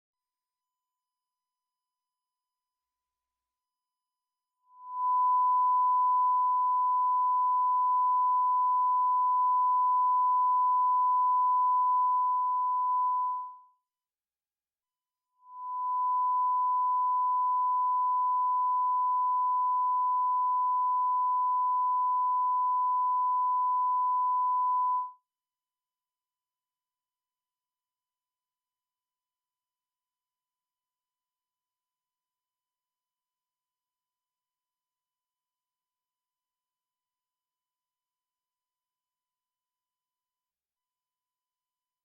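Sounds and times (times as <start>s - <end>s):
steady test tone beep: 4.8s - 13.6s, 15.5s - 25.2s.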